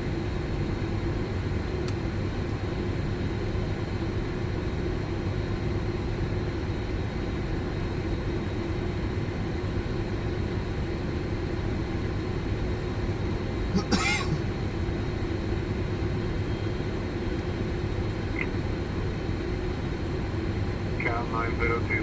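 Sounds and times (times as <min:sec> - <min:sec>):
jet engines idling drone: 0:00.1 - 0:22.0.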